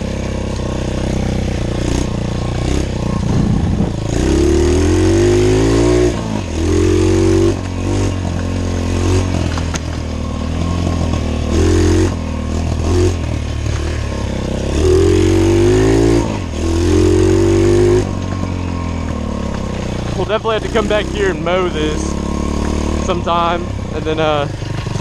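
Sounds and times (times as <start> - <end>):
motorbike engine revving: 0.0 - 25.0.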